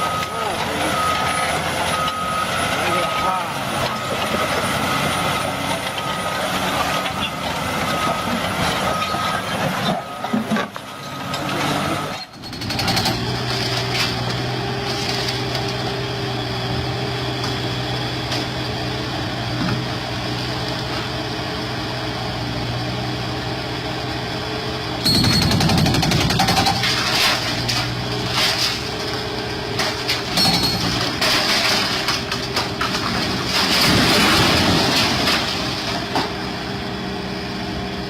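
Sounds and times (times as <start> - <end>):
heavy machinery engine running: 0.0 - 38.0.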